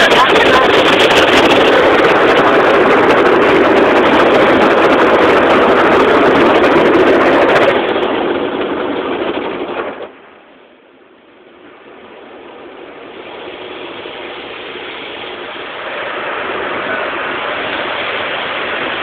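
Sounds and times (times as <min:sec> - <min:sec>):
low hum: 0:00.0 - 0:19.0
car wash spraying car: 0:12.8 - 0:19.0.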